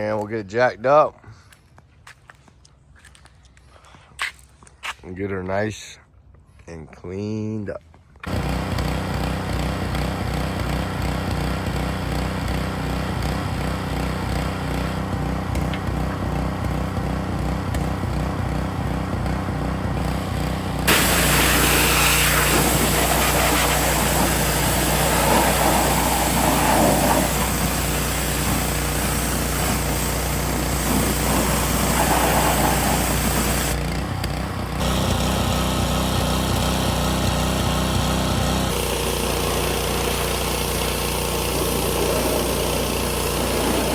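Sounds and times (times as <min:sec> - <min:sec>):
pressure washer engine running: 0:08.2 - 0:43.9
water spray hissing: 0:20.8 - 0:33.8.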